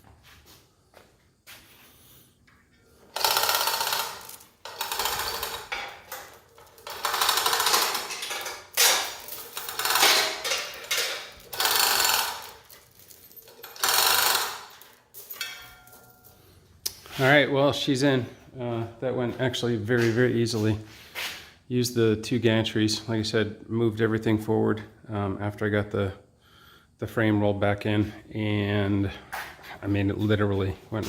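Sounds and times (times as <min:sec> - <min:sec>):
rapid mechanical rattling: 0:03.1 - 0:15.0.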